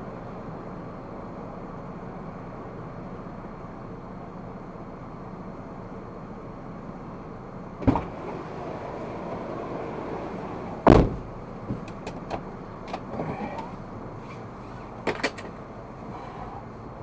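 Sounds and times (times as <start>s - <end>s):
car cabin hum: 7.8s - 16.7s
sharp knocks: 10.8s - 12.2s.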